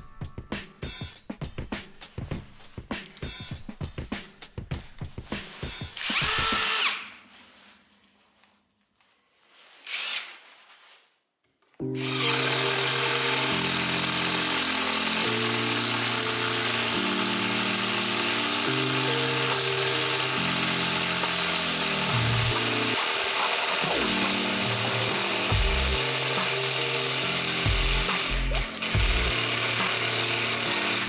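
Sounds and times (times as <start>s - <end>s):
background music with held notes: 0.0s - 6.0s, 11.8s - 31.0s
cordless impact driver: 6.0s - 7.1s, 9.8s - 10.4s, 11.8s - 31.0s.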